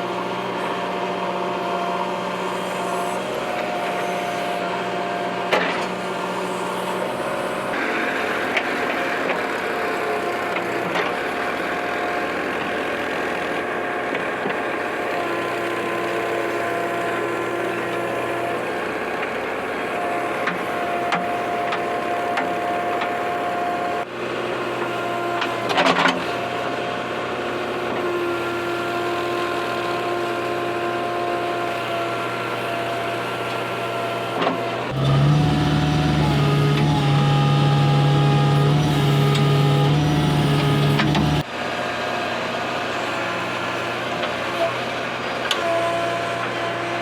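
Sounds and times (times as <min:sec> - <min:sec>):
diesel engine running: 0:34.8 - 0:41.5
hydraulics deep drone: 0:34.9 - 0:41.4
machine whining tones: 0:34.9 - 0:41.4.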